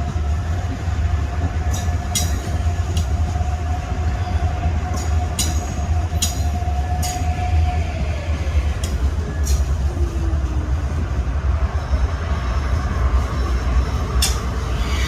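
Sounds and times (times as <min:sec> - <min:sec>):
train rumbling: 0:00.0 - 0:15.0
train whine: 0:00.0 - 0:15.0.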